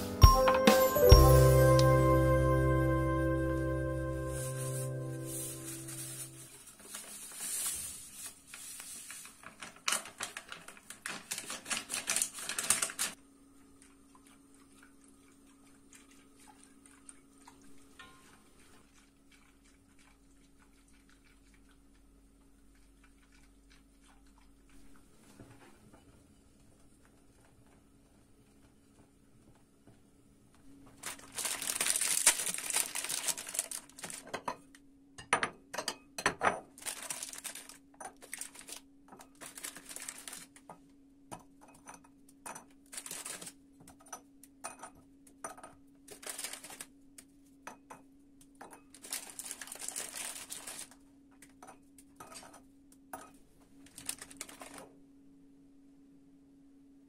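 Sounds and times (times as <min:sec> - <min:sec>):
packaging crinkling and rustling: 0:04.4 - 0:13.2, 0:30.9 - 0:34.4, 0:36.8 - 0:40.6, 0:42.9 - 0:43.6, 0:46.1 - 0:46.9, 0:48.9 - 0:51.0, 0:53.8 - 0:54.9.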